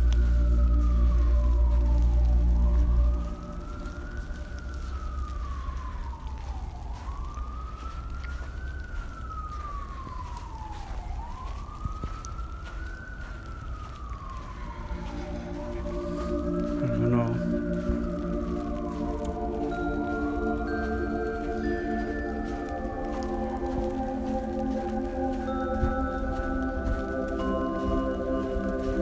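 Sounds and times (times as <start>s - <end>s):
emergency siren wailing: 0.0s - 29.0s.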